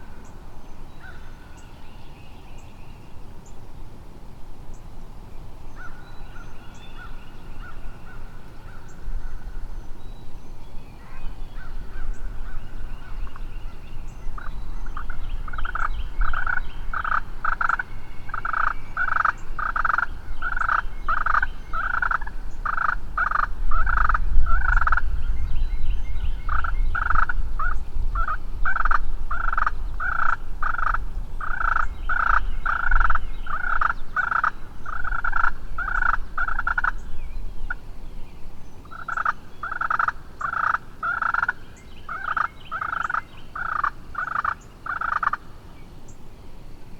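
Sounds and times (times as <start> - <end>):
turkey yelping: 39.0 - 45.4.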